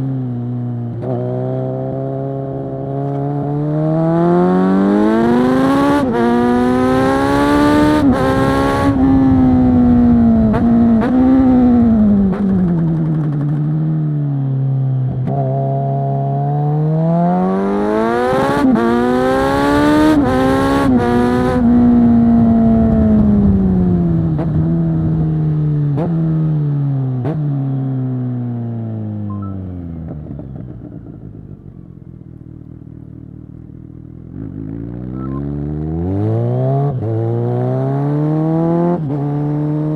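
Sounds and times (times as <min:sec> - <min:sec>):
motorcycle engine revving: 0:00.0 - 0:39.9
wind rushing on microphone: 0:07.5 - 0:12.6, 0:20.5 - 0:25.3.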